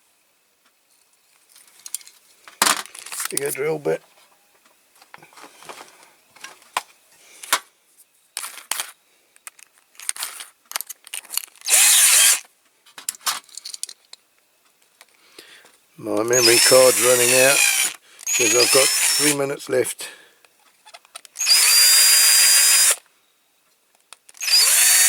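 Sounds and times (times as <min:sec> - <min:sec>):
drill bits clinking: 0:09.5 - 0:12.4, 0:16.2 - 0:19.6, 0:21.3 - 0:23.0, 0:24.4 - 0:25.0
drill running burst: 0:11.7 - 0:12.4, 0:16.2 - 0:19.4, 0:21.4 - 0:23.0, 0:24.4 - 0:25.0.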